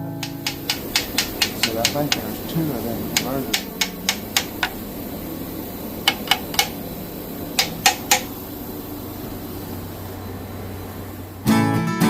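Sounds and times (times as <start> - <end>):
low mechanical hum: 0.0 - 12.0
sharp clicks: 0.2 - 5.2, 6.0 - 6.9, 7.5 - 8.4.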